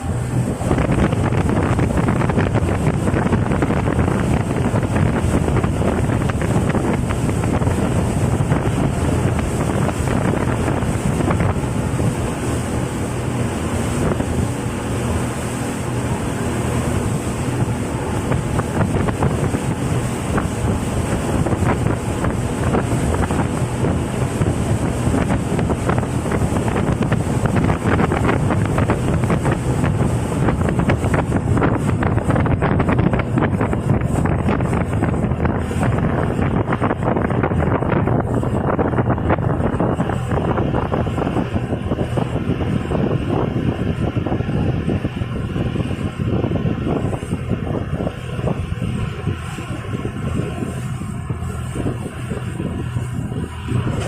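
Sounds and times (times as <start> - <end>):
motorboat engine drone: 0.0 - 54.0
rushing water: 0.0 - 54.0
wind buffeting microphone: 0.0 - 54.0.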